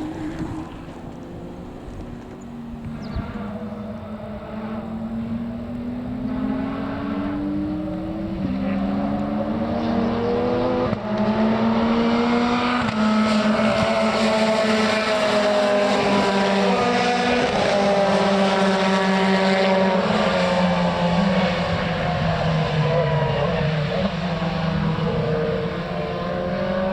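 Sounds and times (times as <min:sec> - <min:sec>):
racing car engine accelerating: 0:00.0 - 0:26.9.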